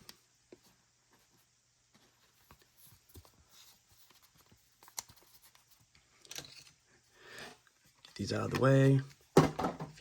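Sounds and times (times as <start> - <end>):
trading cards clicking and rustling: 2.4 - 6.8, 7.9 - 10.0.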